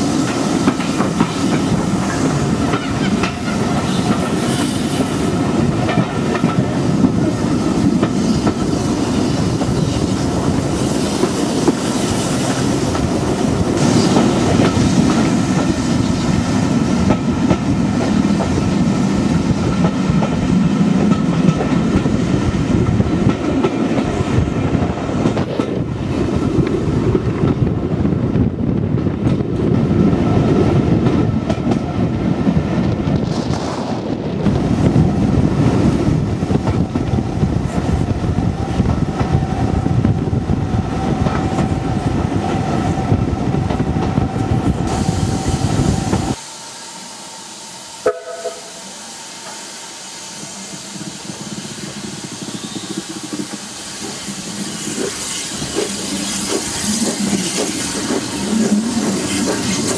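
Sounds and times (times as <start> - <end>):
train wheels rumbling and clattering: 0.0 - 46.4, 48.0 - 59.9.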